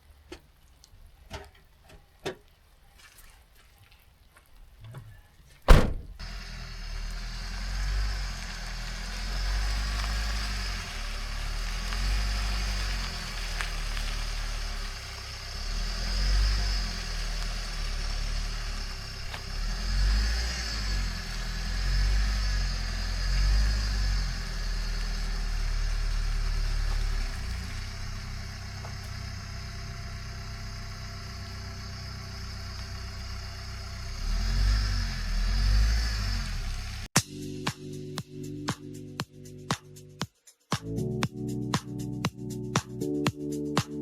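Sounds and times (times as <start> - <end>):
vehicle engine revving: 5.7 - 37.1.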